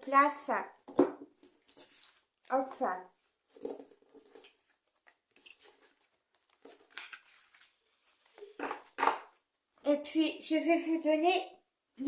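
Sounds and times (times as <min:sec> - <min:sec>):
cards rustling on a table: 0:01.0 - 0:09.8.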